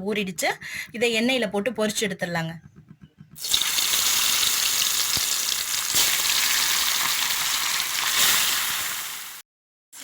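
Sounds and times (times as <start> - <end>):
chicken sizzling in hot oil: 3.4 - 9.4.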